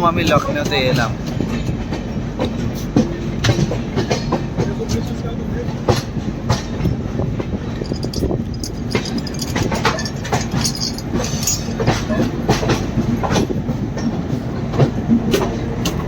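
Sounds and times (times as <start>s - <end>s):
train coach rumble: 0.0s - 16.0s
wheels clacking over rail joints: 0.3s - 16.0s.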